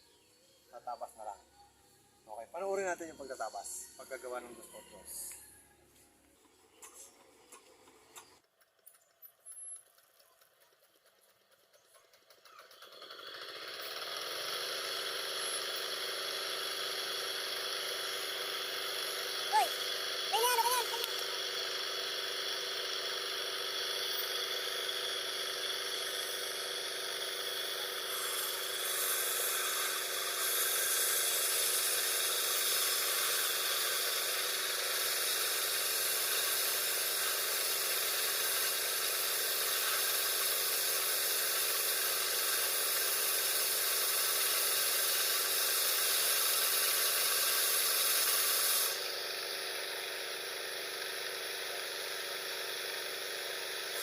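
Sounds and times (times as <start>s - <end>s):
sawmill motor running: 0.0s - 54.0s
saw ripping through board: 12.8s - 54.0s.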